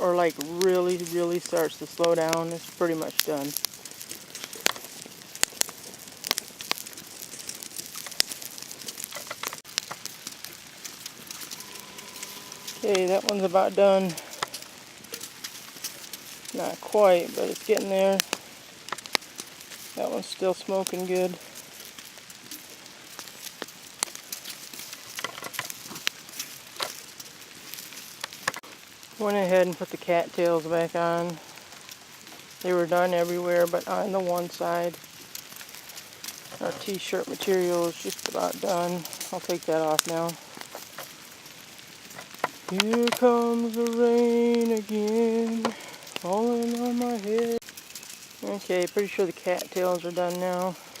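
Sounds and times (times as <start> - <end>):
heavy rain hiss: 0.0 - 51.0
wood fire crackling: 0.0 - 51.0.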